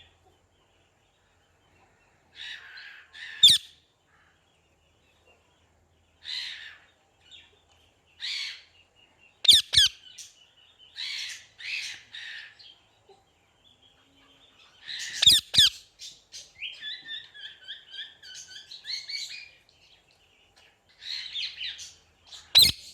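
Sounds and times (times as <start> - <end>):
parrot shrieking: 2.4 - 3.7, 22.5 - 22.8
parrot chirping: 2.4 - 3.8, 9.4 - 10.3, 14.8 - 19.5, 21.0 - 22.9
parrot squawking: 2.4 - 3.8, 9.5 - 10.0, 15.0 - 15.8, 22.5 - 22.9.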